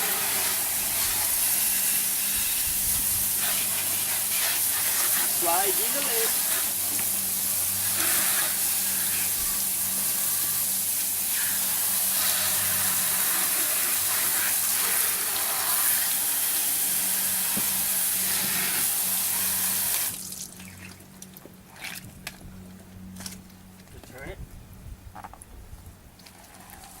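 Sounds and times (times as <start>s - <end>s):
water spray hissing: 0.0s - 20.5s.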